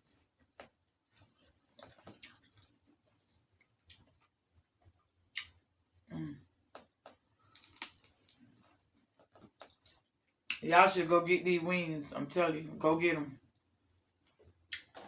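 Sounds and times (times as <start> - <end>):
person chewing: 0.0 - 5.6, 6.6 - 10.6.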